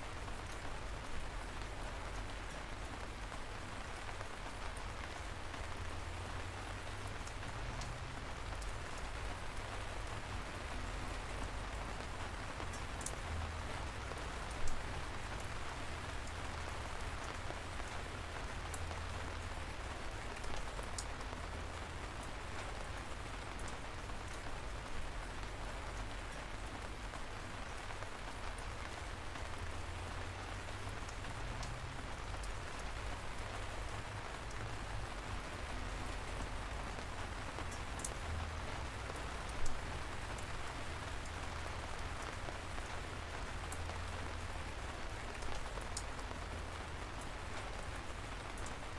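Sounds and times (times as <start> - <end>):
raindrops ticking: 0.1 - 48.9.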